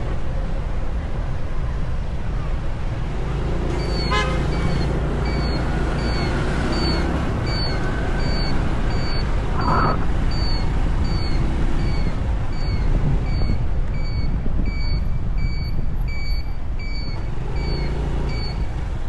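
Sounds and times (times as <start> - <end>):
street traffic rumbling: 0.0 - 19.0
car horn toot: 3.8 - 4.8
high short chirps: 7.5 - 10.6.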